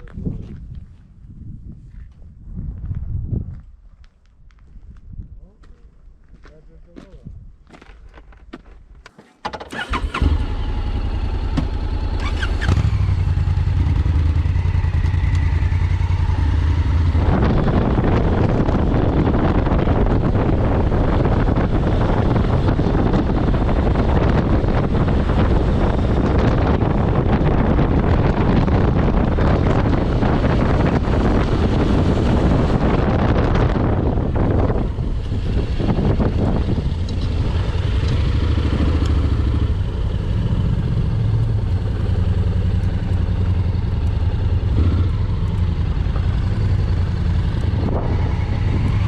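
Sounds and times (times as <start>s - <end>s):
wind rushing on microphone: 0.0s - 6.0s, 6.8s - 7.7s, 12.4s - 49.0s
motorcycle engine running: 9.8s - 49.0s.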